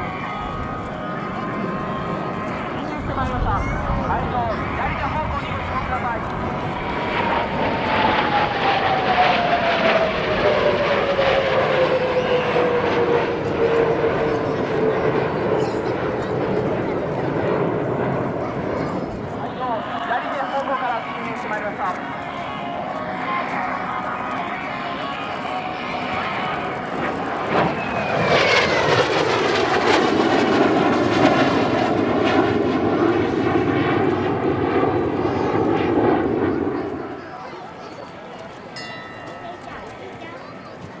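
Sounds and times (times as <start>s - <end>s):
jet aircraft flying past: 0.0s - 38.8s.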